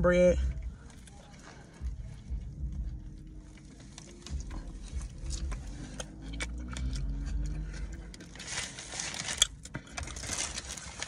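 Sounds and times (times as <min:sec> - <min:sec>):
low rumble in car cabin: 0:00.0 - 0:11.0
person chewing: 0:02.7 - 0:10.2.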